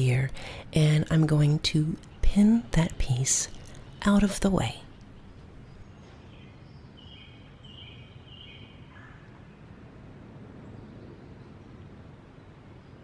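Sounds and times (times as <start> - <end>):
low outdoor background rumble: 0.0 - 6.8.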